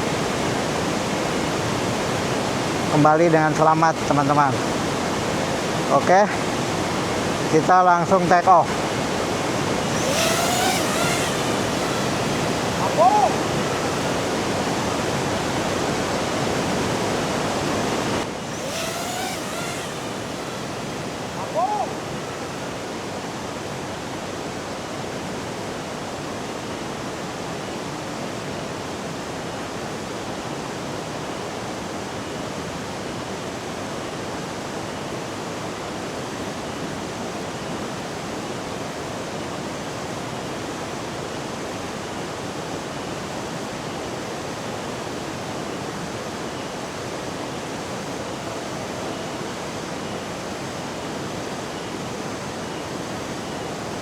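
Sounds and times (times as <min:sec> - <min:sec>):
waterfall roaring: 0:09.5 - 0:23.1.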